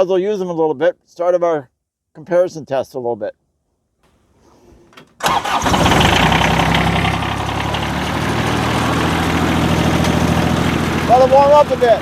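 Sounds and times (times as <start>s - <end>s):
tractor diesel engine running: 4.2s - 12.0s.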